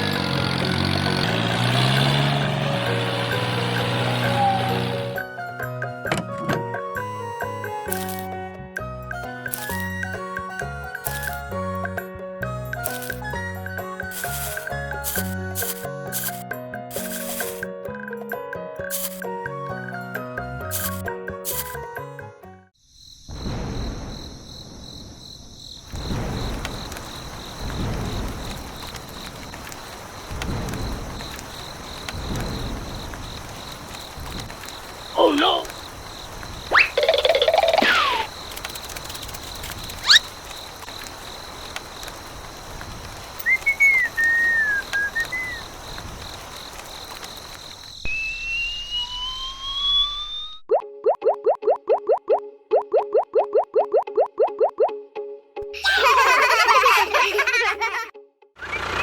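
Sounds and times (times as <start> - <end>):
slide whistle rising: 3.8 - 5.3, 43.4 - 45.6, 48.0 - 50.7
quick upward whistle: 4.1 - 5.3, 36.7 - 38.3, 40.0 - 40.2, 43.4 - 45.7, 48.0 - 50.8
crickets chirping: 12.8 - 17.6, 18.9 - 19.2, 22.8 - 50.6
wavering whistled phrase: 36.7 - 38.3, 43.4 - 45.6
faint steady high tone: 48.0 - 50.7.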